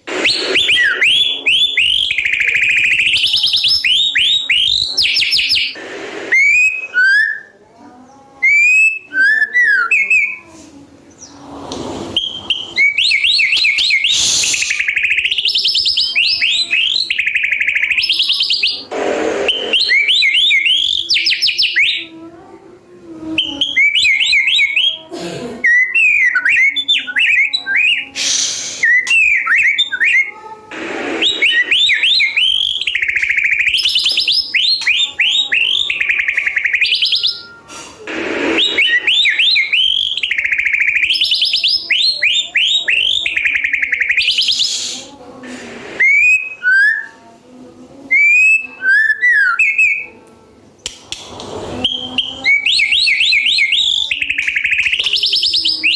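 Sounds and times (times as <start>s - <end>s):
loud rushing noises: 11.4s - 12.9s, 30.7s - 31.8s, 38.1s - 39.1s
bird singing whistled notes: 12.1s - 18.8s, 28.8s - 30.3s, 31.2s - 37.6s, 38.6s - 44.8s, 51.8s - 55.9s.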